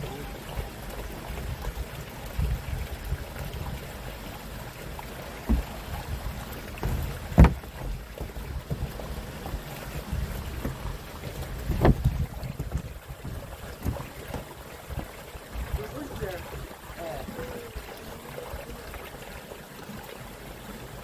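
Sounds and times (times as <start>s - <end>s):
wind buffeting microphone: 0.5s - 4.1s, 5.5s - 17.9s.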